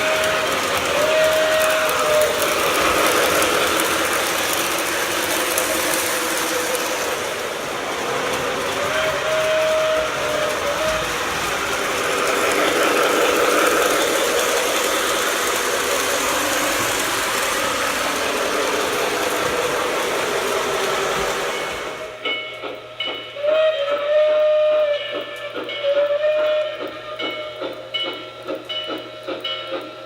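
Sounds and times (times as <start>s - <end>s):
steam whistle blasts: 0.0s - 2.9s, 8.6s - 11.6s, 23.4s - 27.7s
model train running: 0.0s - 30.0s
steam locomotive chuffing: 0.0s - 30.0s.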